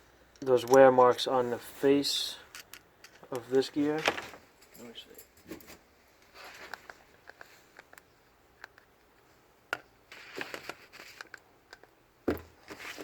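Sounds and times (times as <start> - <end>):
rustling: 3.4 - 8.0, 10.0 - 11.4, 12.3 - 13.0.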